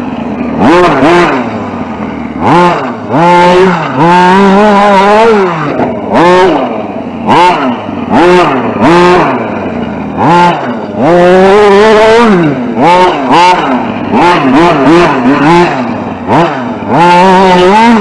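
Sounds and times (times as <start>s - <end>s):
toy truck motor revving: 0.5s - 18.0s.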